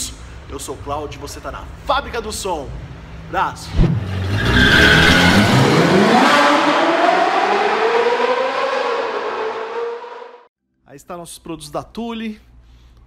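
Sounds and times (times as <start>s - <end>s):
car rushing in: 3.6s - 10.5s
sports car engine revving: 3.7s - 10.4s.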